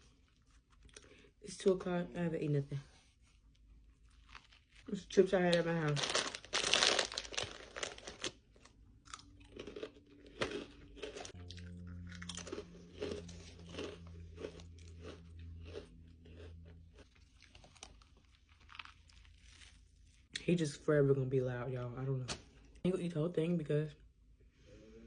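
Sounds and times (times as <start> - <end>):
person chewing crunchy chips: 0.0 - 1.4, 3.6 - 20.4
low steady hum: 0.0 - 25.0.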